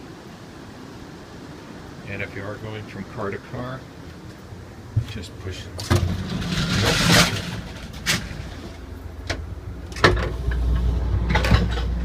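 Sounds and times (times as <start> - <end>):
steady low rumble: 0.9 - 12.0
sliding door opening: 5.8 - 12.0
sharp clicks and knocks: 9.2 - 12.0.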